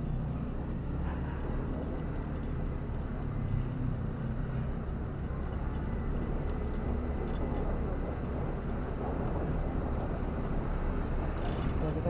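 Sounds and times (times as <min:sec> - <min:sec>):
wind rushing over microphone: 0:06.1 - 0:12.0.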